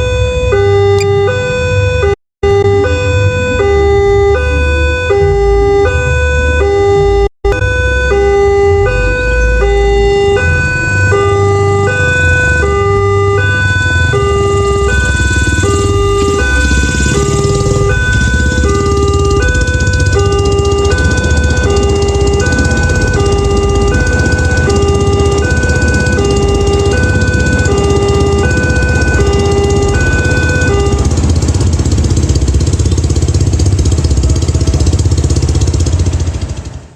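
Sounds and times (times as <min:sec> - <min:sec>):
two-tone signal: 0:00.0 - 0:31.1
steady bass: 0:00.0 - 0:36.2
engine low pulsing: 0:00.0 - 0:36.9.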